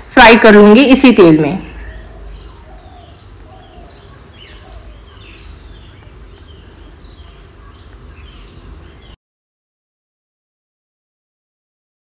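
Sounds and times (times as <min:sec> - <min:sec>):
small birds chirping: 0:01.6 - 0:09.2.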